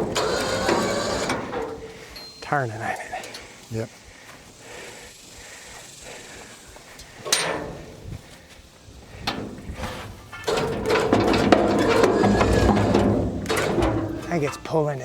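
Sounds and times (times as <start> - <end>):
winch running and grinding: 0.0 - 2.3, 10.4 - 15.0.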